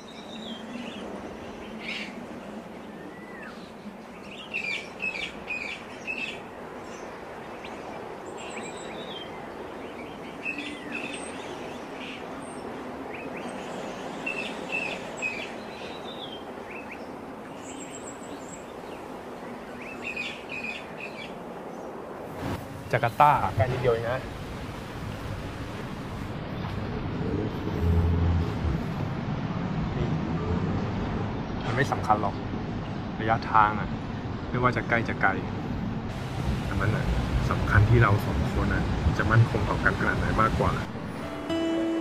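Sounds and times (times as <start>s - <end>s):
birds chirping: 0.0s - 22.1s.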